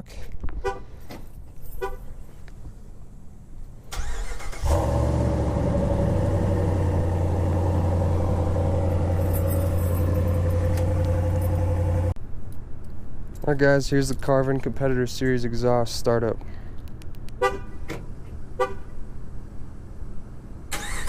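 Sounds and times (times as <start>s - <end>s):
engine cranking: 3.9s - 6.1s, 20.7s - 21.0s
engine idling: 4.0s - 12.2s.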